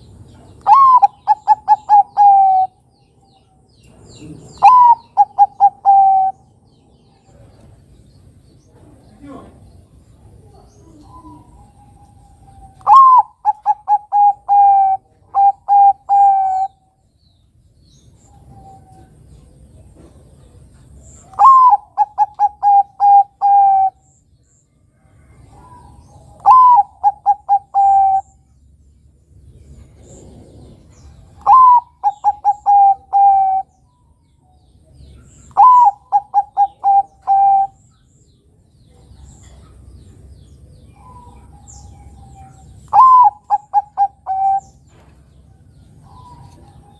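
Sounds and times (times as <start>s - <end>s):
dove cooing: 0.6s - 2.8s, 4.2s - 6.5s, 10.3s - 16.8s, 21.2s - 24.1s, 25.3s - 28.4s, 29.8s - 33.8s, 35.2s - 37.8s, 40.8s - 46.9s.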